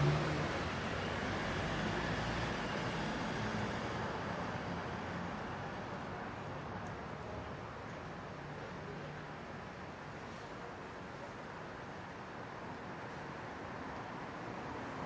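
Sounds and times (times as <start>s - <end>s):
passing cars: 0.0s - 7.6s.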